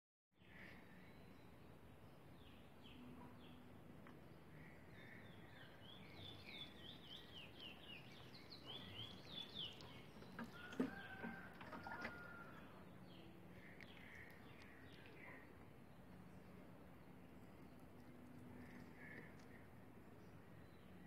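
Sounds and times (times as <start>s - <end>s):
small bird chirping: 4.6s - 12.4s.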